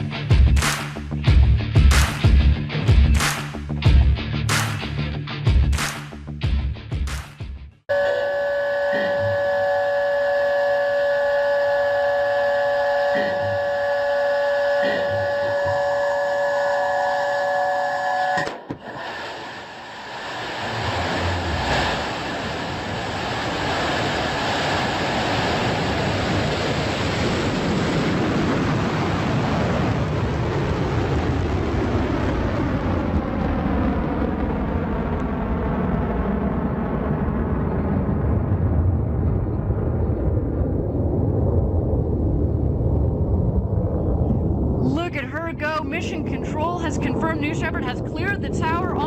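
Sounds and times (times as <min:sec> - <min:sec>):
rocket engine roaring: 0:18.3 - 0:49.0.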